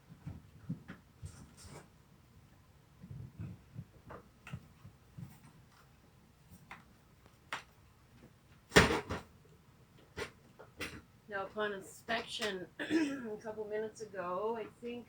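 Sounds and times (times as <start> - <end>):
faint clicks and light knocks: 2.5 - 8.7.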